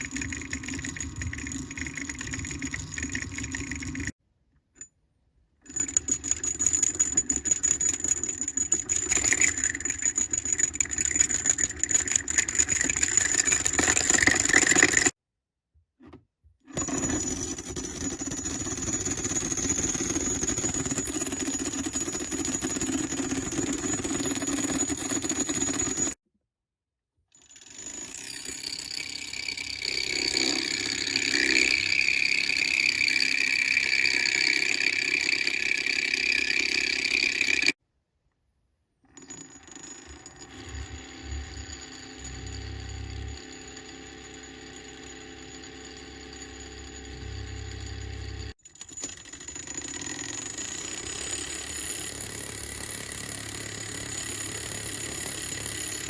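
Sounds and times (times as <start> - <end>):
stirrer motor humming and whining: 40.1 - 48.6, 49.7 - 56.0.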